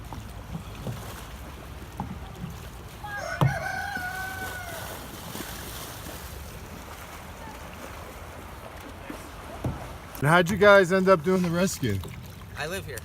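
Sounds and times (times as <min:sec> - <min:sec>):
rooster crowing: 0:03.0 - 0:05.1.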